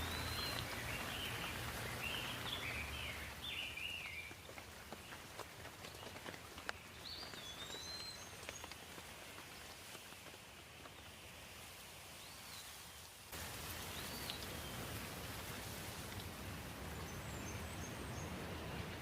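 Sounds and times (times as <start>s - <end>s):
birds chirping: 0.0s - 11.2s, 16.9s - 19.0s
water drips: 0.0s - 11.7s, 13.4s - 19.0s
light rain hiss: 0.0s - 19.0s.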